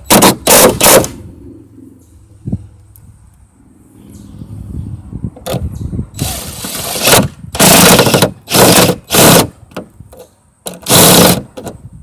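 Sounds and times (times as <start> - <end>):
power tool driving a bolt: 0.1 - 1.2, 6.2 - 9.9, 10.6 - 11.8.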